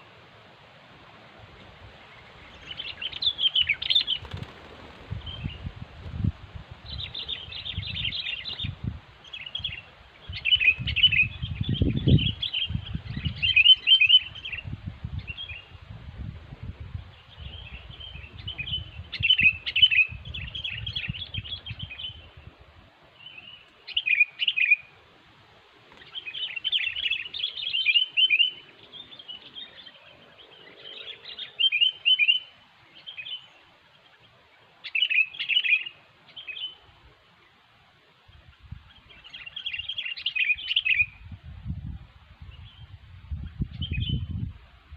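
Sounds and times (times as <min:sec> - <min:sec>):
birds chattering calls: 0:01.5 - 0:05.7, 0:06.8 - 0:15.7, 0:25.8 - 0:37.7.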